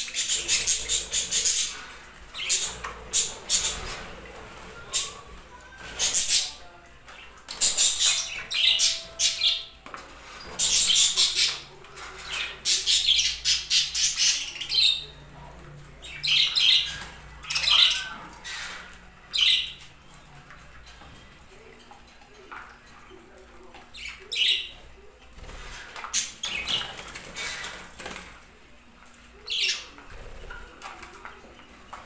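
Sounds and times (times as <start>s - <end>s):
budgerigars chattering and squawking: 0.0s - 5.2s, 5.8s - 9.7s, 10.4s - 15.2s, 16.0s - 19.8s.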